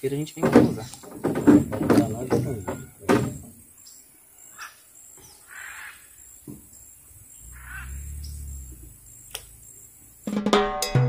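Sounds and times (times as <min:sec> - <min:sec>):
harsh bird calls: 0:00.0 - 0:10.3
low rumble: 0:07.2 - 0:09.7.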